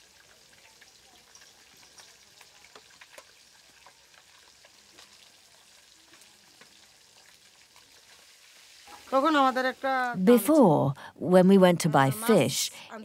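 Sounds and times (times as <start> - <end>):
food sizzling in a wok: 0.0 - 10.2.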